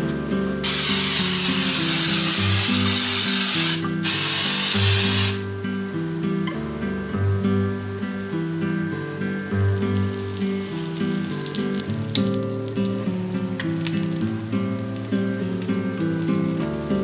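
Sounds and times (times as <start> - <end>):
acoustic background music: 0.0 - 17.0
aerosol cooking spray hissing: 0.6 - 5.5, 9.2 - 12.3.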